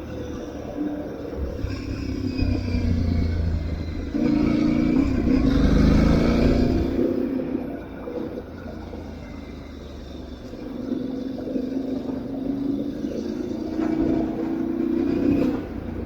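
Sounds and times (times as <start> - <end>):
motorcycle engine accelerating: 1.4 - 7.4.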